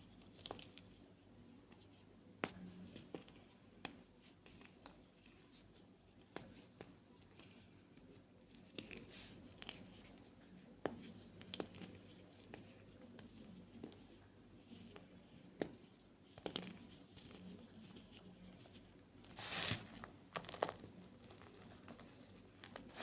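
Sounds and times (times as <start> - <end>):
chalk crunching and crackling: 8.5 - 23.0.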